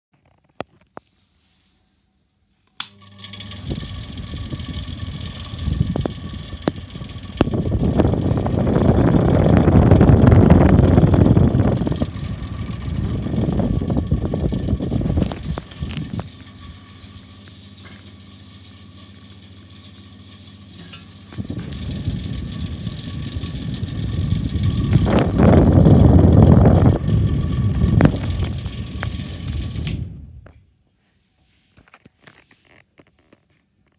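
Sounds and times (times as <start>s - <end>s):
fan motor hum: 2.7s - 30.8s
rough bearing noise: 3.0s - 29.9s.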